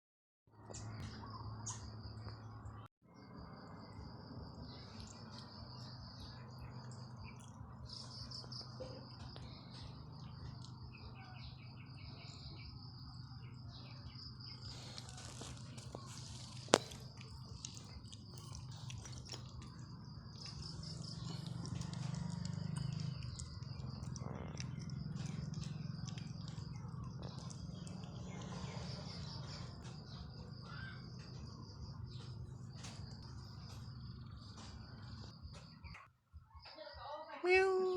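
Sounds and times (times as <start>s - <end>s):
bird chirps: 0.6s - 37.9s
small ticks: 14.6s - 31.4s
insect trill: 14.7s - 35.7s.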